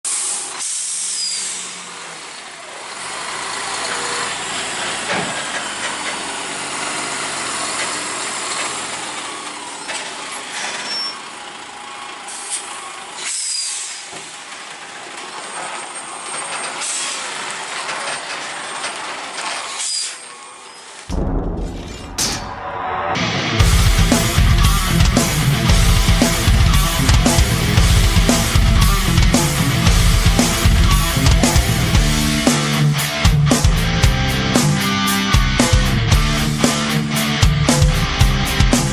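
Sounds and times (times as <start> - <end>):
air brake hiss: 0.1 - 2.0, 12.3 - 14.1, 16.5 - 17.6
diesel truck engines droning: 0.1 - 21.1, 22.2 - 38.9.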